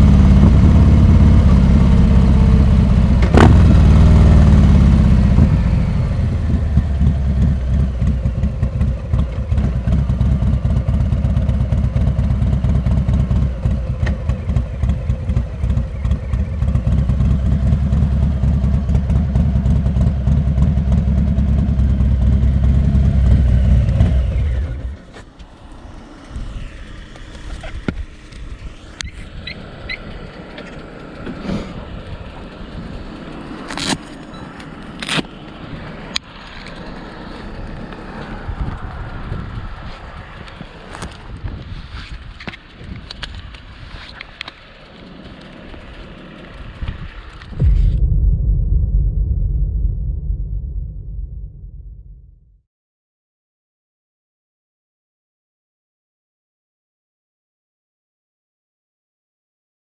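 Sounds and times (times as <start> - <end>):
motorcycle engine idling: 0.0 - 24.7.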